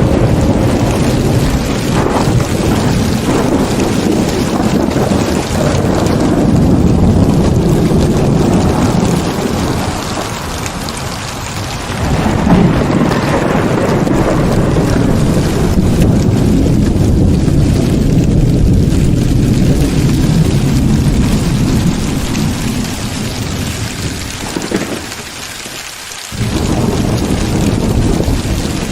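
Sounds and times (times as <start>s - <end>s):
heavy rain pouring: 0.0s - 28.9s
thunder rumbling: 0.0s - 28.9s.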